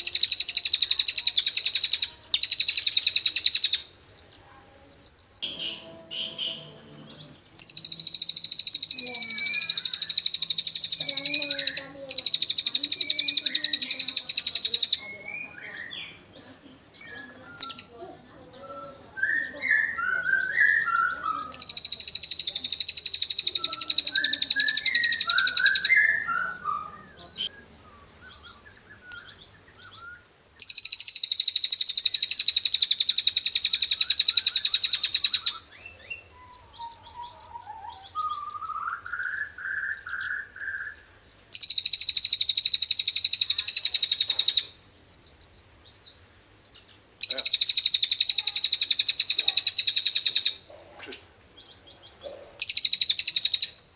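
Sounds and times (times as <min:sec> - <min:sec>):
bird chirps and whistles: 0:05.4 - 0:16.2, 0:18.6 - 0:44.8, 0:45.8 - 0:50.7, 0:52.6 - 0:53.8
bird rapid high trill: 0:05.4 - 0:16.2, 0:18.6 - 0:27.5, 0:30.6 - 0:35.7.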